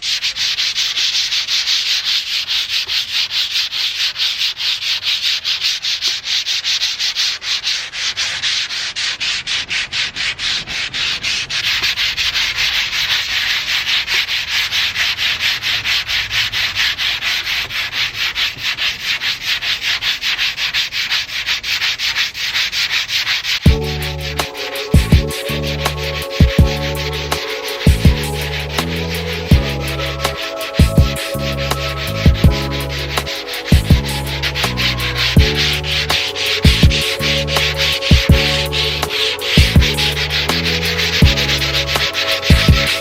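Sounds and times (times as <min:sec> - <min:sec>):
sandpaper rubbing on painted metal: 0:00.0 - 0:43.0
bass-heavy background music: 0:23.7 - 0:43.0.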